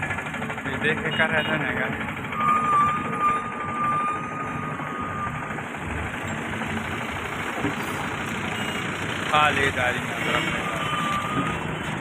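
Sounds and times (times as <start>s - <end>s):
heavy diesel engine running: 0.0s - 12.0s
steady high-pitched tone: 2.3s - 5.6s.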